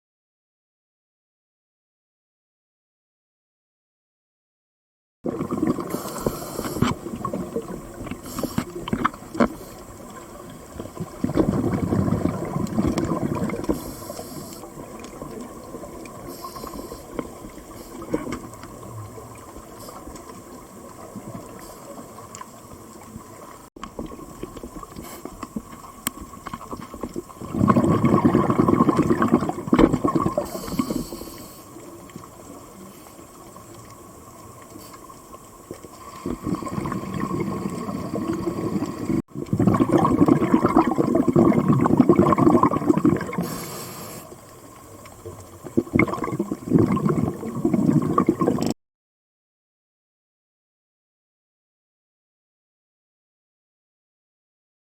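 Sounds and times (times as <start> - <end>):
air bubbles underwater: 5.3 - 34.7, 35.4 - 48.8
faint clicks: 12.6 - 27.4
low hiss: 13.5 - 27.5, 30.3 - 39.2, 43.2 - 45.9.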